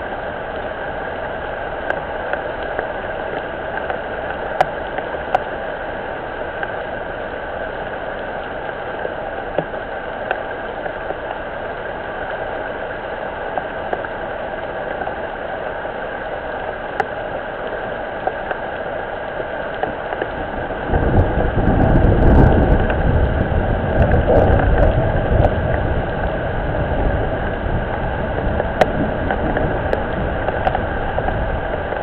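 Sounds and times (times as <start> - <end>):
rain falling on pond: 0.0 - 32.0
uneven low rumble: 20.2 - 32.0.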